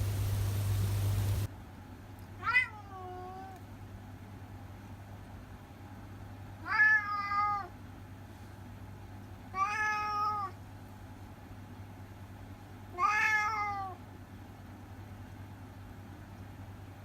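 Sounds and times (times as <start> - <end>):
cat meowing: 2.4 - 3.6, 6.6 - 7.7, 9.5 - 10.6, 12.9 - 14.0.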